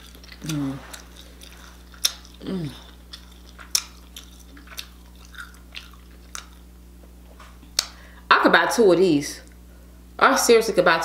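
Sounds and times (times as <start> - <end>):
person chewing wetly: 0.0 - 6.8.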